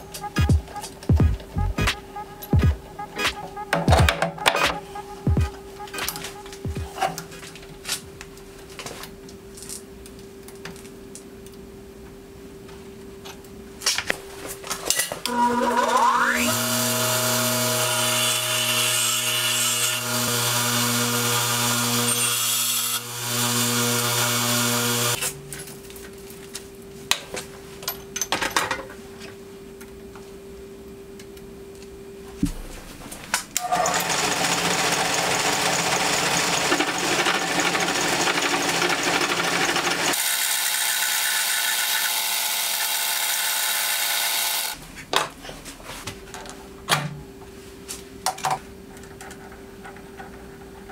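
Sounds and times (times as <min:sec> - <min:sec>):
bench grinder grinding metal: 0:15.3 - 0:25.2
metal lathe cutting steel: 0:15.3 - 0:25.2.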